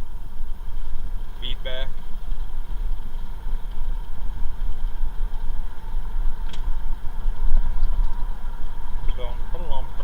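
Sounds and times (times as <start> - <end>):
road and engine rumble: 0.0 - 10.0.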